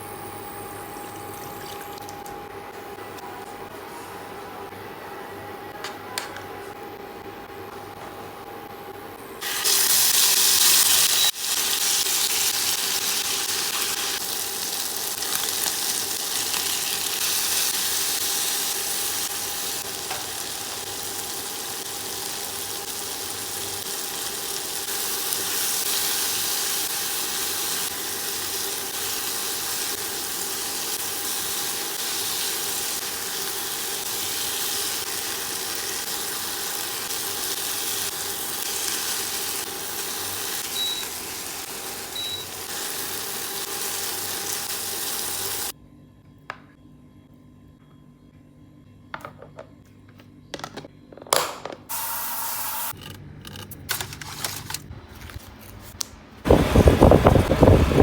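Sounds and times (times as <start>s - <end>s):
food sizzling in hot oil: 9.4s - 45.7s.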